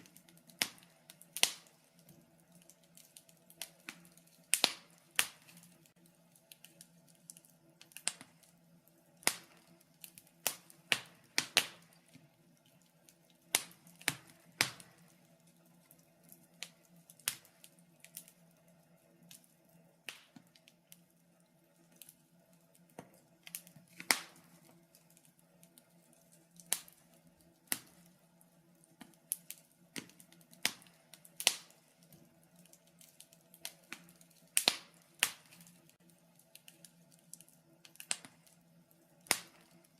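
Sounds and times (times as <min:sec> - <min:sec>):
faint steady hum: 0:00.0 - 0:39.9
wood fire crackling and popping: 0:00.0 - 0:39.9.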